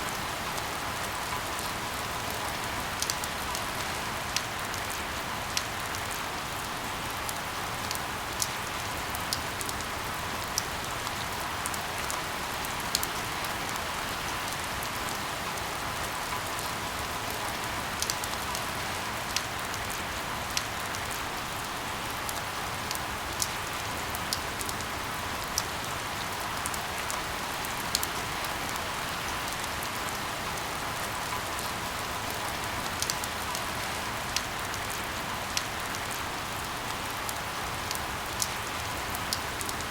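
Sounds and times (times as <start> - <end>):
heavy rain falling: 0.0 - 39.9
rain drop ticks: 18.0 - 18.6, 32.9 - 39.9.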